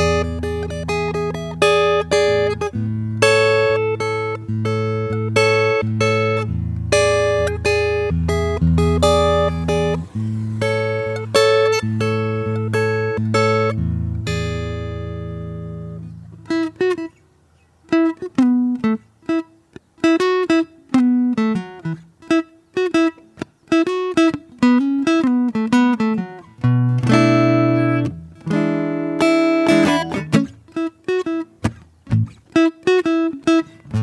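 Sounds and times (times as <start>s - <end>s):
acoustic guitar: 0.0s - 34.0s.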